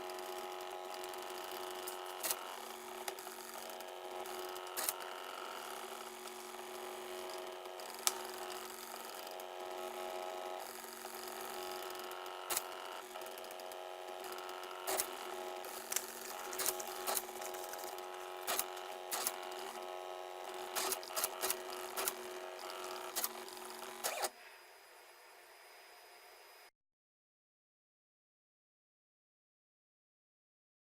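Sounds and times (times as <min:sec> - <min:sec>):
stepper motors whining: 0:00.2 - 0:24.3
sharp clicks: 0:12.5 - 0:12.8, 0:14.9 - 0:19.8, 0:20.5 - 0:24.3.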